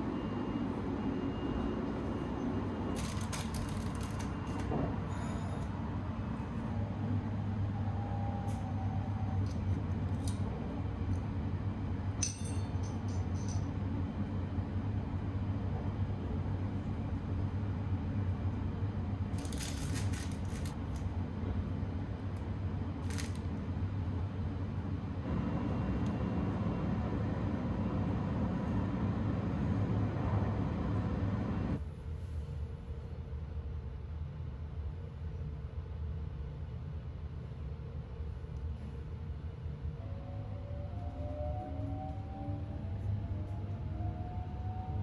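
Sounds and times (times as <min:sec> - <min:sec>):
train running rumble: 0:01.8 - 0:32.2.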